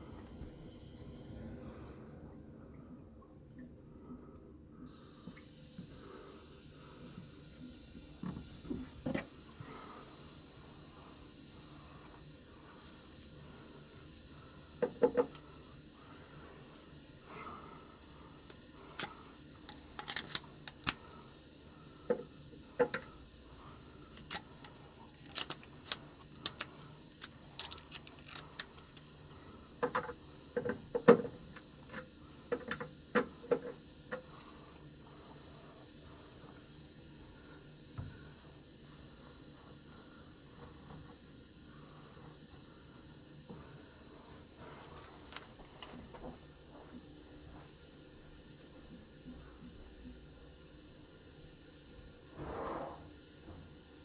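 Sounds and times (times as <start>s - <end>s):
faint steady hiss: 0.0s - 54.0s
tools clicking and knocking: 19.7s - 21.0s, 24.2s - 29.0s, 29.8s - 34.2s.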